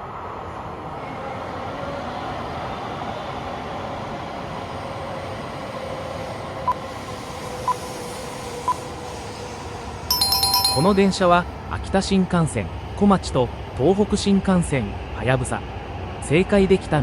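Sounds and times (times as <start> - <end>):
short beeps: 10.1 - 11.2.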